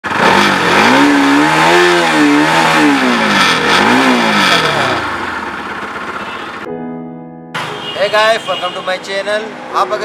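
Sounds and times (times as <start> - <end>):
motorcycle engine revving: 0.0 - 6.7.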